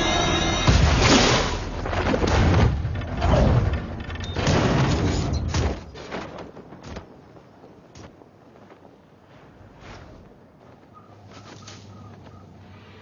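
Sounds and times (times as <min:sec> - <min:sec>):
film music: 0:00.0 - 0:02.0
heavy booms and thuds: 0:00.5 - 0:05.9.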